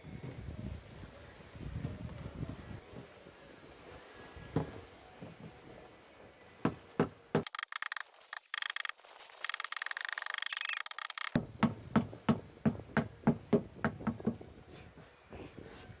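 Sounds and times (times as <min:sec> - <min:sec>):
fast rattling clicks: 0:07.4 - 0:11.4.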